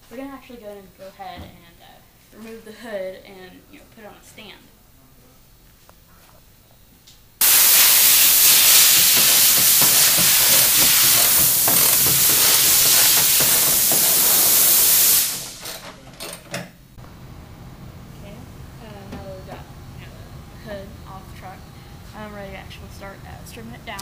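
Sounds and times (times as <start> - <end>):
loud steady hiss: 7.4 - 24.0.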